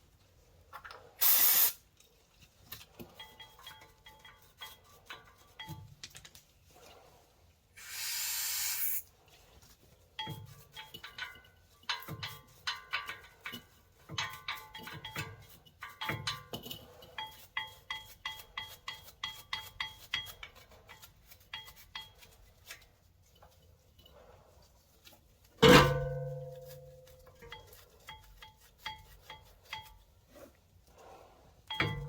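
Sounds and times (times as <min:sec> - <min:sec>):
scrubbing and scraping metal parts: 0:00.0 - 0:32.0
aerosol spray hissing: 0:01.2 - 0:01.8, 0:07.8 - 0:09.0.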